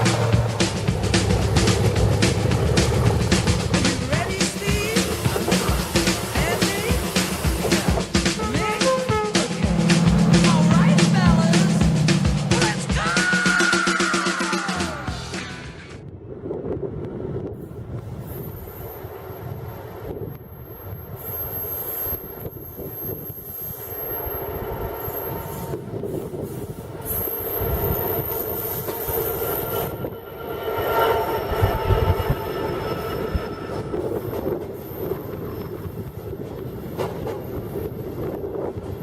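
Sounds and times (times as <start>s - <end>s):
train rumble: 0.0s - 39.0s
wind buffeting microphone: 16.0s - 21.2s, 24.4s - 39.0s
train wheels squealing on rails: 18.1s - 39.0s.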